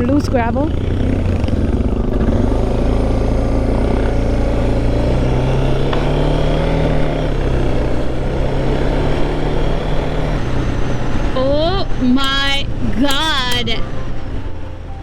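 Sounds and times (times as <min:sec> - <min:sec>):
motorcycle engine cruising: 0:00.0 - 0:15.0
wind and road noise: 0:00.0 - 0:15.0.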